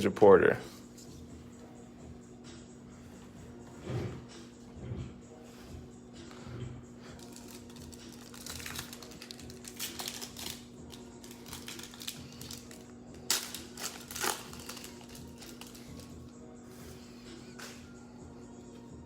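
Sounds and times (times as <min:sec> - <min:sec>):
loud wrapper crackles: 0:07.2 - 0:16.1
wrapper crinkling and rustling: 0:07.2 - 0:16.1.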